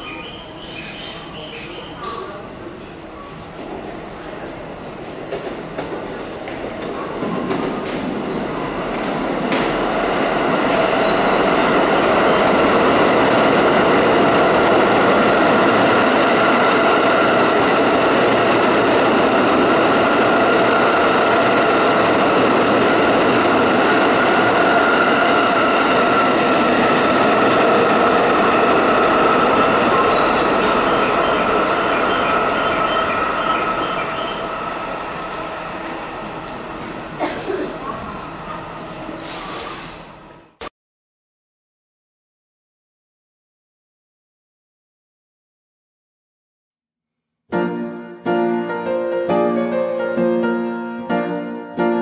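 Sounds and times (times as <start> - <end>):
train wheels rumbling on track: 0.4 - 40.4.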